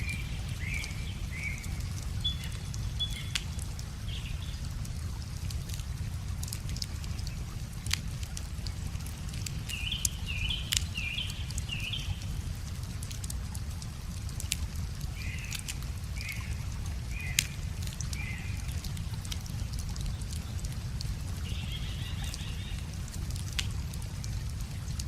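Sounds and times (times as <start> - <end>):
bird calls: 0.0 - 4.6, 9.6 - 12.3, 15.2 - 18.7, 21.4 - 22.9
wood fire crackling and popping: 0.0 - 21.4, 22.2 - 25.0.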